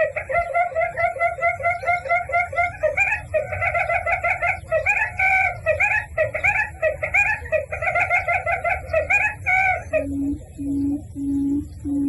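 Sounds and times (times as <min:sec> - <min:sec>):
bird chattering call: 0:00.0 - 0:12.0.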